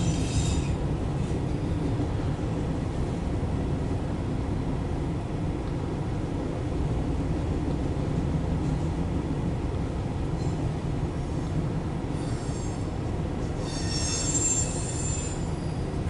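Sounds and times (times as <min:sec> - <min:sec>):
high-pitched wheel squeal: 0:00.0 - 0:00.8, 0:12.2 - 0:12.9, 0:13.6 - 0:15.8
train wheels rumbling on rail: 0:00.0 - 0:16.0.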